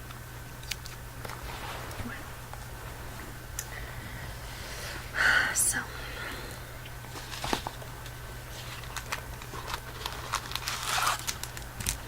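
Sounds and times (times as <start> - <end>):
steady low hum: 0.0 - 12.0
candy wrappers crinkling: 7.1 - 12.0.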